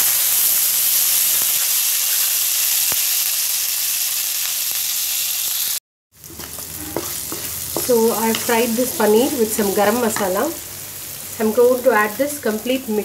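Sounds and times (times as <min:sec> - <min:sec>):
food sizzling in butter: 0:00.0 - 0:13.0.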